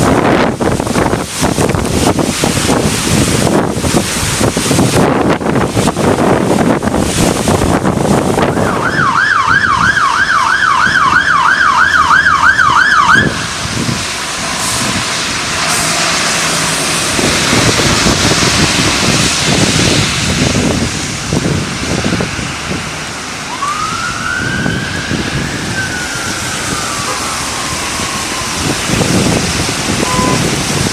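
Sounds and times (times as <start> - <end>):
steady rushing noise: 0.0 - 30.9
siren yelping: 8.4 - 13.6, 23.5 - 30.6
siren wailing: 8.4 - 13.9, 23.4 - 30.6.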